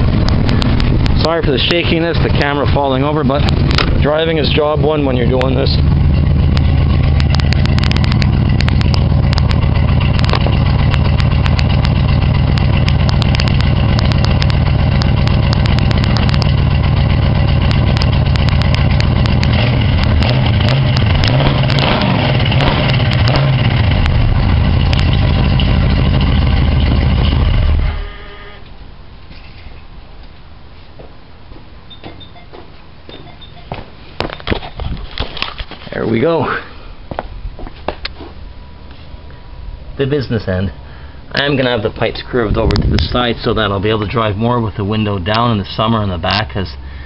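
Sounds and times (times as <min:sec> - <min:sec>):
car engine running: 0:00.0 - 0:28.6, 0:39.7 - 0:47.0.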